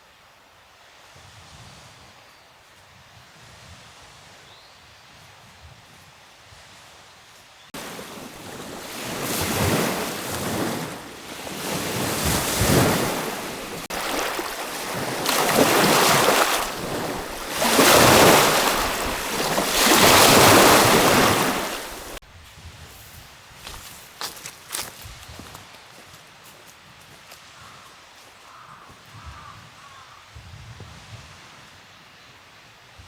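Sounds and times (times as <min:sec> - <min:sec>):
wind buffeting microphone: 0:07.8 - 0:23.9.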